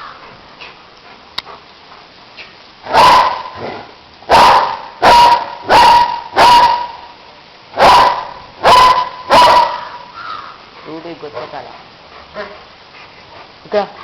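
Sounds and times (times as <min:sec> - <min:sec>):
dog barking loudly: 0:02.9 - 0:07.2, 0:07.8 - 0:10.2.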